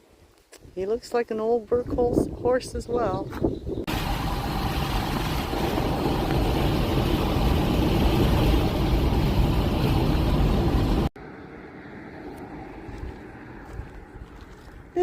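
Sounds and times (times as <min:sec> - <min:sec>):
vehicle road noise rumble: 0:03.8 - 0:15.0.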